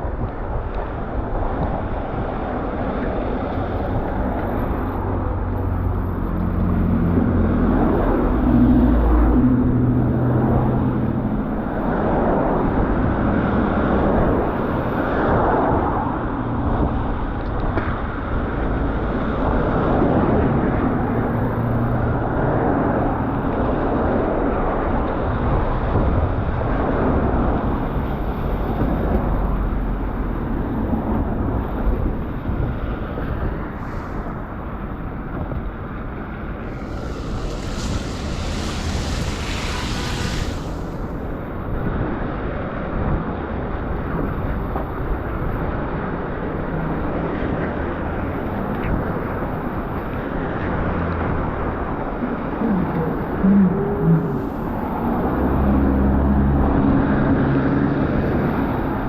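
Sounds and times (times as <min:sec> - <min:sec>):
road traffic rumble: 0:00.0 - 0:59.0
wind buffeting microphone: 0:00.0 - 0:59.0
bright hiss: 0:36.6 - 0:41.6.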